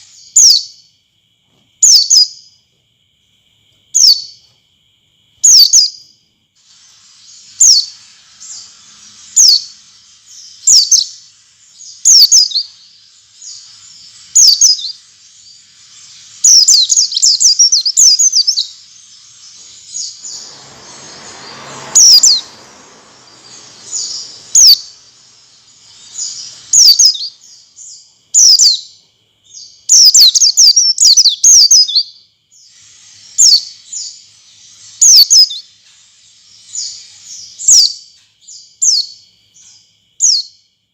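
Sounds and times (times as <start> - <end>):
bird giving sharp high chirps: 6.6 - 28.9, 29.9 - 38.0.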